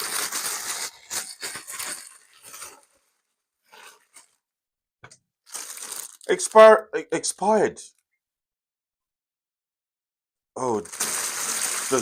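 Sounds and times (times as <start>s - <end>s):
plastic wrapper crinkling: 0.0s - 4.4s, 5.4s - 6.8s, 10.6s - 12.0s.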